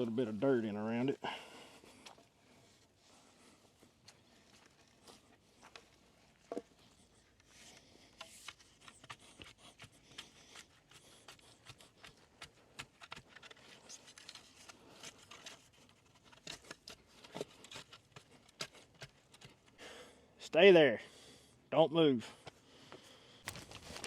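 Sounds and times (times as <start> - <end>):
dirt scraping and crunching: 23.4 - 24.0.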